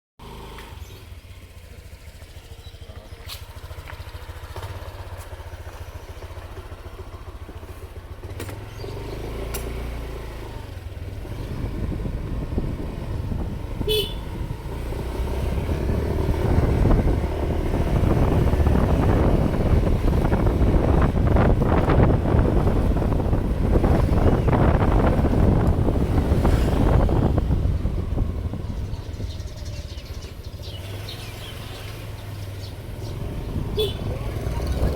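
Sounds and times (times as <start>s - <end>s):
vehicle engine running: 0.2s - 34.9s
wind rumbling on microphone: 10.5s - 34.9s.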